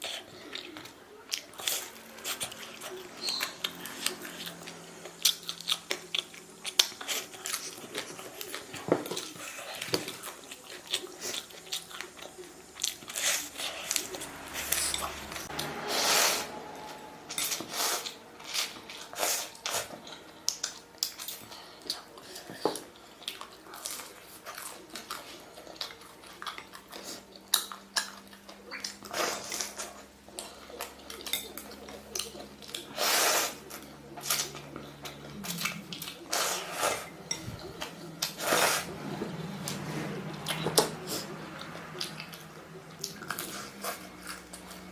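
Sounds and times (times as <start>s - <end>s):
noodle slurping: 38.2s - 39.4s.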